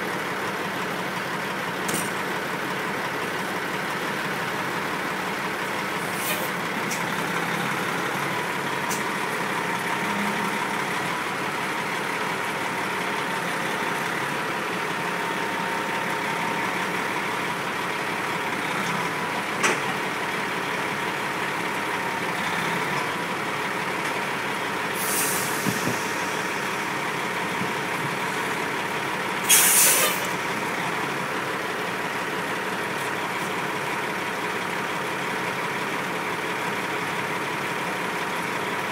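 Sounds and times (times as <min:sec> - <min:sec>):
heavy truck engine running: 0:00.0 - 0:38.9
air brakes hissing: 0:06.0 - 0:07.0, 0:24.9 - 0:26.9, 0:29.4 - 0:30.4.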